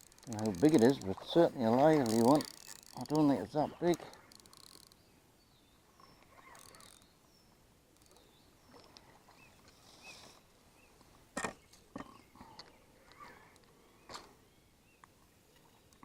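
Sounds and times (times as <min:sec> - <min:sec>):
small clicks: 0:00.0 - 0:05.0, 0:06.2 - 0:07.2, 0:08.0 - 0:09.0.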